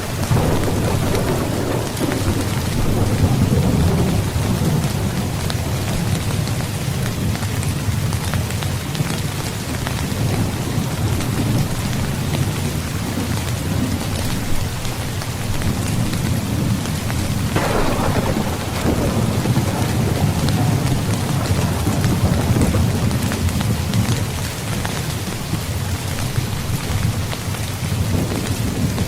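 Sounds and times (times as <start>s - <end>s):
thunder burst: 0.0s - 6.4s, 16.4s - 24.2s
low rumble of thunder: 0.0s - 29.0s
steady rain: 0.0s - 29.0s.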